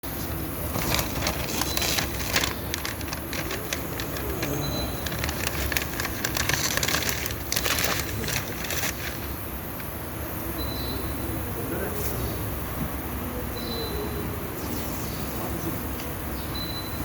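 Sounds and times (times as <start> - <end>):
spattering crackles: 0.7 - 9.9.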